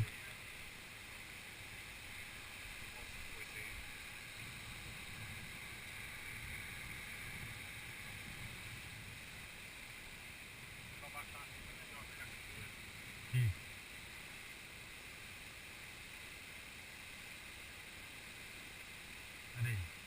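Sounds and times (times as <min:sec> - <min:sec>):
steady rushing hiss: 0:00.0 - 0:20.0
wind rumbling on microphone: 0:03.2 - 0:13.6.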